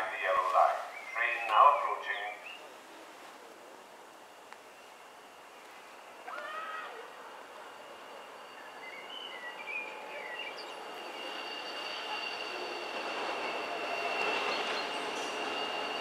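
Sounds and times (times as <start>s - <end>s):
freight train on rails: 0.0s - 16.0s
high wheel squeal: 8.1s - 16.0s.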